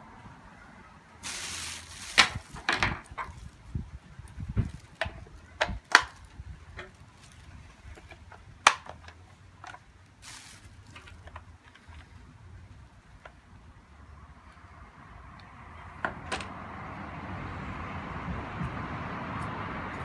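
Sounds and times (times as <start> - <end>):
plastic parts clicking and knocking: 4.9 - 7.0, 7.9 - 9.8.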